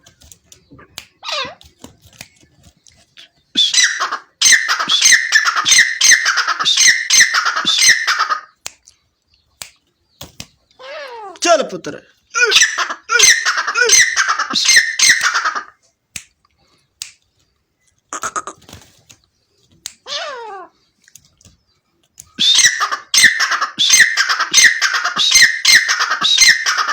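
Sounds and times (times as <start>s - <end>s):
partridge calling: 3.2s - 8.5s, 10.7s - 15.7s, 22.3s - 26.9s.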